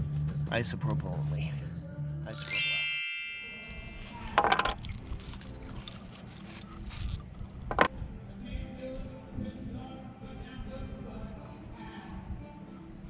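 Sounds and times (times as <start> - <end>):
bright metallic ding: 2.3 - 4.4.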